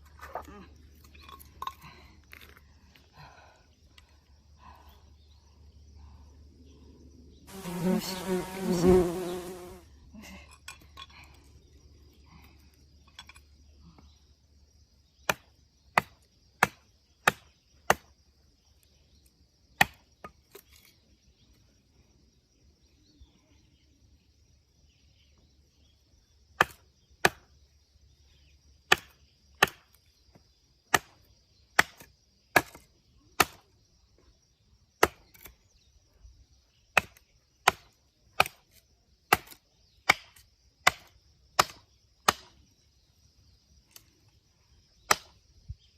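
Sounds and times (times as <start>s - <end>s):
blade chopping wood: 26.6s - 27.5s, 37.0s - 38.6s, 39.3s - 42.5s.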